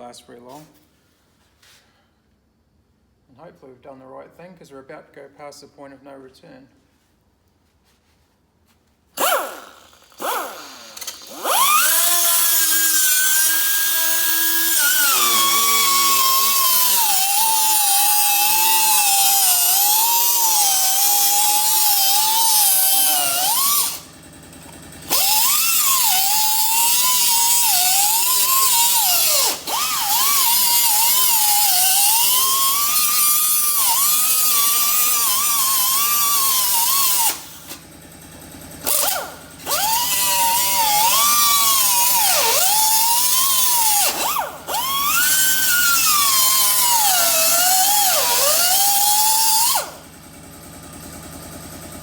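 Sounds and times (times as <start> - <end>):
angle grinder cutting metal: 9.2 - 37.8, 38.8 - 50.0.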